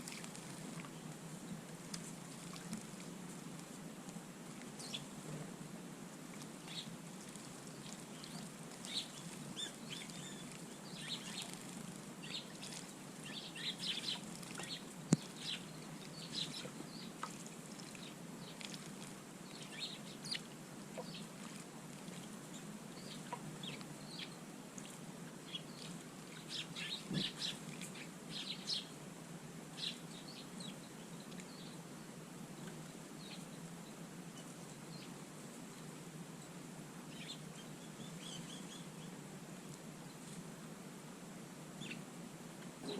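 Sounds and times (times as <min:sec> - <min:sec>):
small birds chirping: 0:04.8 - 0:05.4, 0:06.6 - 0:24.5, 0:25.4 - 0:29.0, 0:29.8 - 0:35.2, 0:37.1 - 0:39.2, 0:41.8 - 0:42.1.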